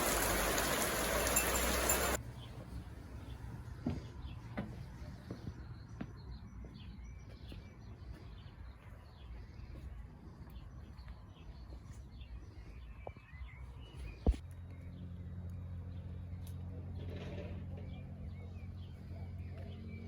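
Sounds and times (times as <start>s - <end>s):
small birds chirping: 0.0s - 2.6s.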